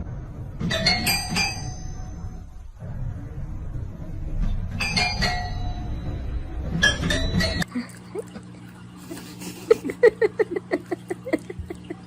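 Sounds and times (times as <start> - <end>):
metallic clattering and ringing: 0.6 - 2.6, 4.4 - 7.7
low rumble: 2.0 - 6.9.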